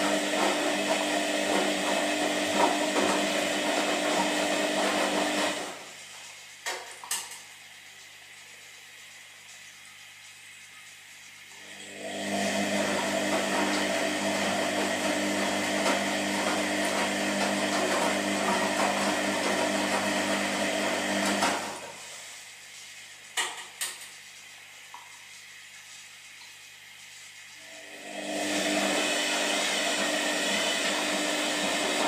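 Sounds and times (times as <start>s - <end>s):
washing machine drum whirring: 0.0s - 32.0s.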